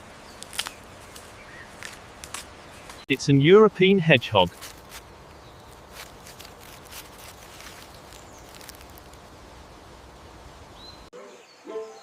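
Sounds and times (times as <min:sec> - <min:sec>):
hedgehog rustling through leaves: 0:00.0 - 0:03.1, 0:04.4 - 0:11.0
small clicks and crackles: 0:00.4 - 0:03.0, 0:04.6 - 0:09.2.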